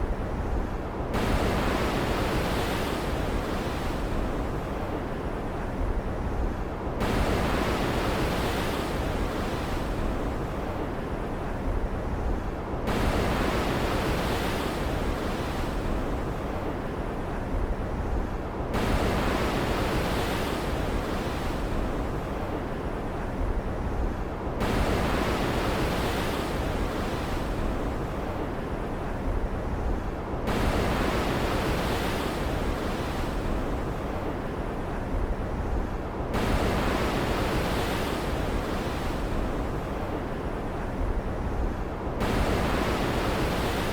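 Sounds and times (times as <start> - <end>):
ocean surf rumble: 0.0 - 43.9
waves surging and hissing: 24.1 - 43.9.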